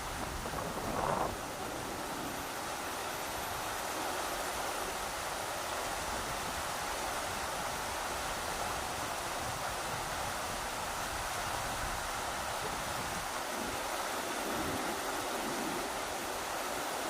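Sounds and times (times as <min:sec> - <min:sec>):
rushing river water: 0:00.0 - 0:17.0
wind: 0:00.0 - 0:17.0.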